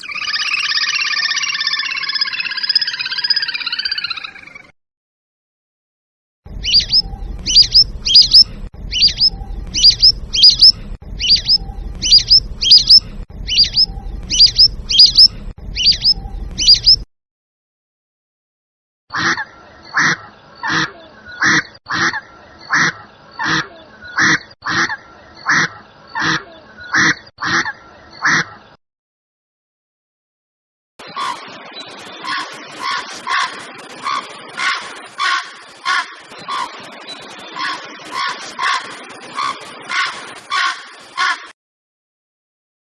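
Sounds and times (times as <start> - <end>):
harsh bird calls: 0.0 - 4.7, 6.5 - 17.1
sharp rising bird chirps: 0.0 - 4.7, 6.5 - 17.1
low rumble: 6.5 - 17.0.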